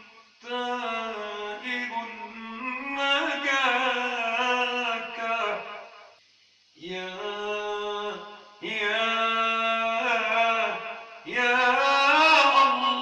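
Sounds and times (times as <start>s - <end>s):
man chanting: 0.4s - 5.9s, 6.8s - 13.0s.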